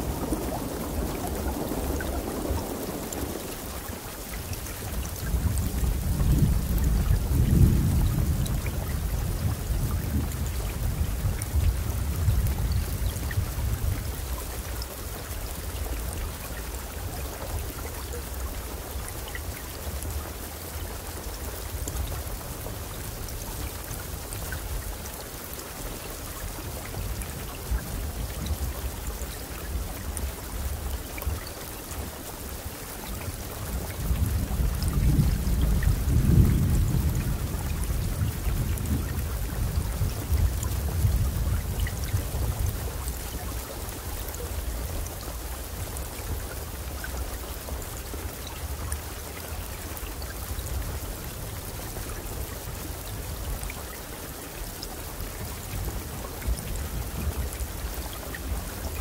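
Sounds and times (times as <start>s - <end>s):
low rolling thunder: 0.0s - 14.4s, 33.4s - 43.0s
rain hissing: 0.0s - 59.0s.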